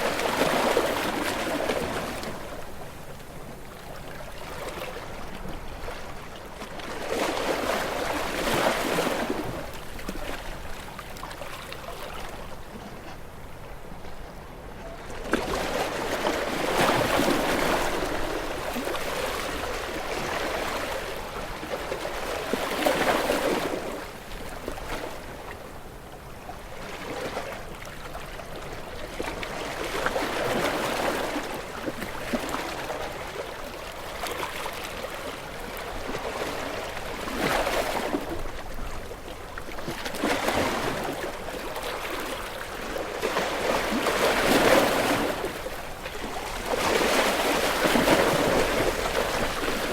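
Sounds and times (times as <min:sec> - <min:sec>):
ocean waves breaking: 0:00.0 - 0:03.2, 0:15.2 - 0:25.3, 0:29.1 - 0:49.9.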